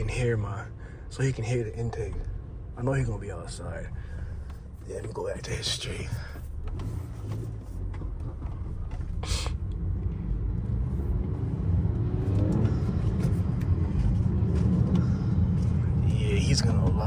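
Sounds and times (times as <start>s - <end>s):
car engine rumble from cabin: 0.0s - 17.0s.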